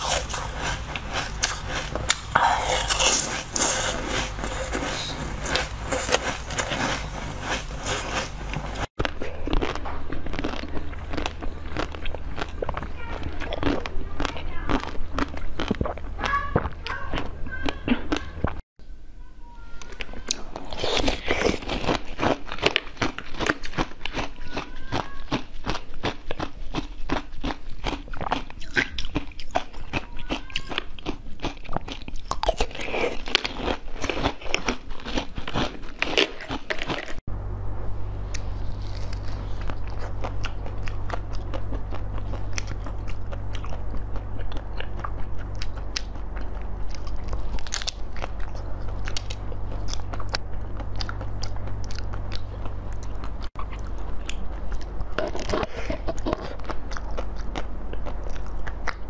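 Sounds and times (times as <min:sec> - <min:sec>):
crunchy biting and chewing: 0:00.0 - 0:18.6, 0:19.9 - 0:37.2, 0:38.2 - 0:59.0
low steady hum: 0:00.0 - 0:59.0.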